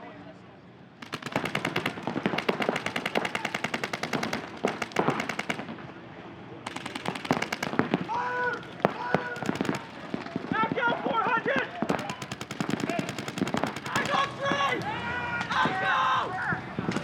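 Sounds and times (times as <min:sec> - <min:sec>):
paintball markers firing rapidly: 0:01.0 - 0:05.8, 0:06.7 - 0:14.8.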